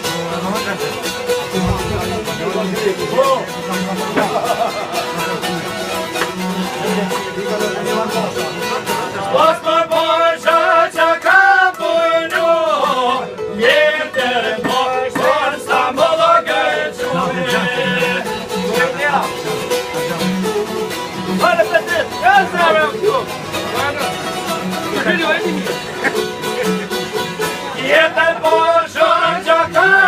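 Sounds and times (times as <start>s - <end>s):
plucked string instruments: 0.0s - 30.0s
man singing: 9.1s - 18.4s, 27.6s - 30.0s.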